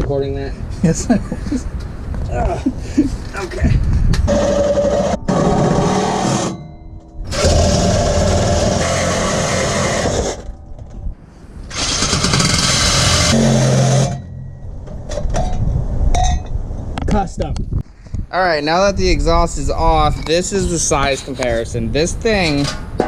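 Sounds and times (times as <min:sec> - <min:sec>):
saw cutting steel pipe: 0:04.3 - 0:06.6, 0:07.3 - 0:10.5, 0:11.7 - 0:14.3.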